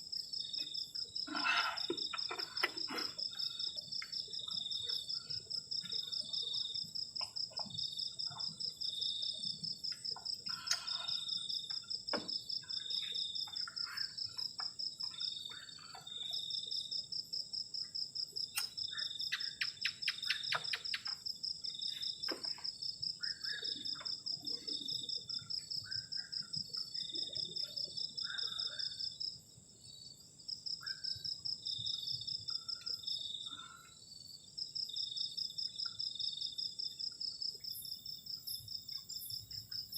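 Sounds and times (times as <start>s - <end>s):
crickets chirping: 0.0s - 39.9s
night animal calls: 0.6s - 6.7s, 10.4s - 17.0s, 18.6s - 21.2s, 23.2s - 29.2s, 32.5s - 34.0s.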